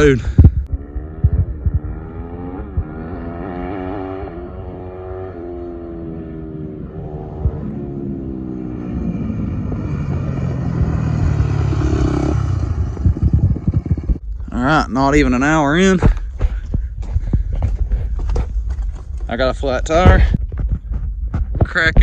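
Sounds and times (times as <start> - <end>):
motocross bike accelerating: 0.7 - 14.2.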